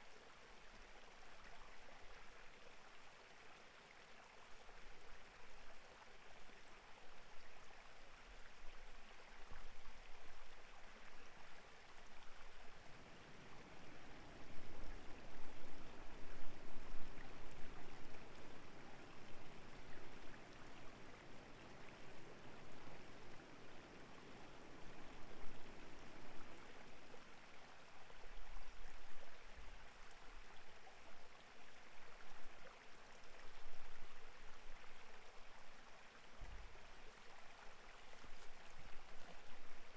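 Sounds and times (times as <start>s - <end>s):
stream flowing over rocks: 8.1s - 39.9s.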